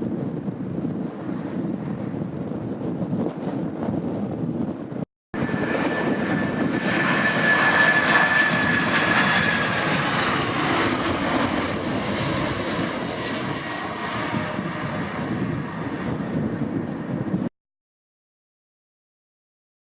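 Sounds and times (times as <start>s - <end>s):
jet engines roaring past: 4.7s - 17.5s.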